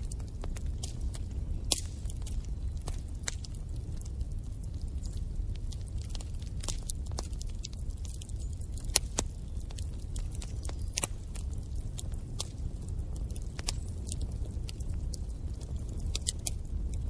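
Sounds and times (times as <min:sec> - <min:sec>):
fire crackles and pops: 0:00.0 - 0:17.0
fire flames rumbling: 0:00.0 - 0:17.0.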